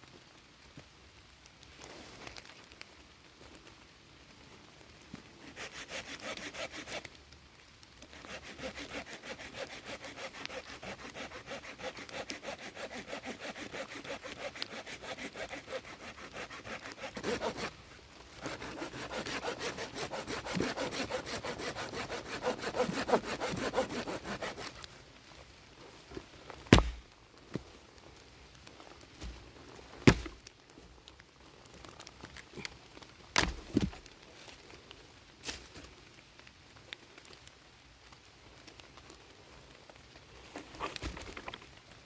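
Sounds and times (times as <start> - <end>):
hand saw cutting wood: 5.4 - 7.1, 8.2 - 17.7, 18.4 - 24.8, 26.7 - 27.0, 30.1 - 30.4, 33.4 - 34.0
sharp knock: 26.7 - 27.0.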